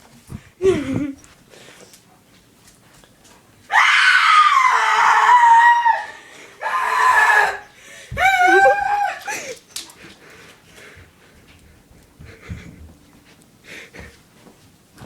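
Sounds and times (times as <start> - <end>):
girl screaming in fright: 3.7 - 7.6, 8.2 - 9.3.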